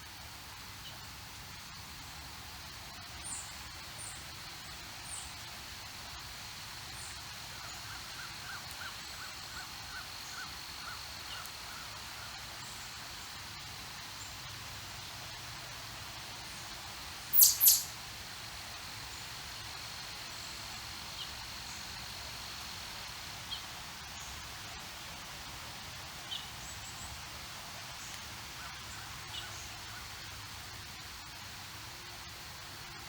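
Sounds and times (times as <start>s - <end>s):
small birds chirping: 17.3s - 18.0s.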